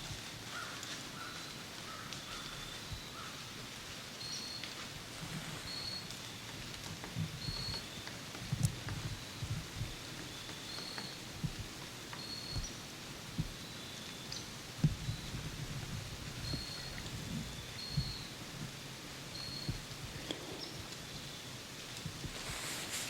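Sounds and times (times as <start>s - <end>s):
steady hiss: 0.0s - 23.0s
soft low thumps: 11.4s - 11.7s, 12.5s - 13.6s, 14.8s - 18.2s.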